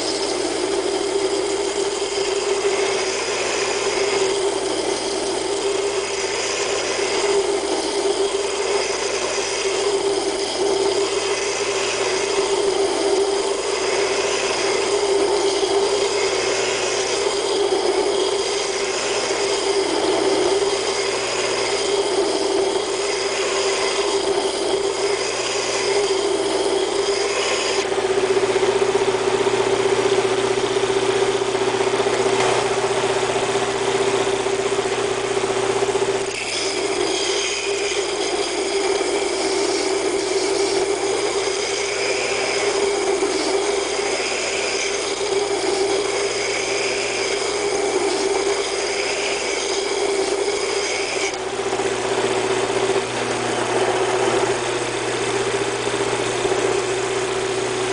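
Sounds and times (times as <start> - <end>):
belt grinder humming: 0.0 - 57.9
steel being ground: 0.0 - 57.9.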